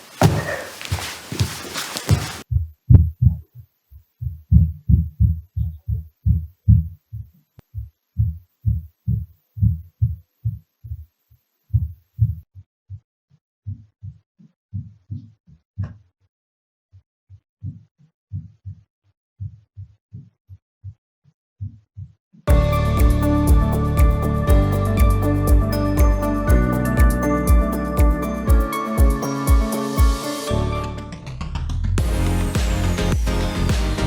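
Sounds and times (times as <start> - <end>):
dull thuds through ceiling: 0.0 - 2.4.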